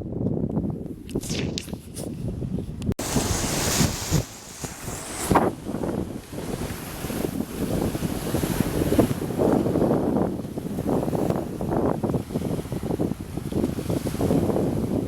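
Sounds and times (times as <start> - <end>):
wind buffeting microphone: 0.0 - 15.0
sea waves on shore: 3.0 - 10.0.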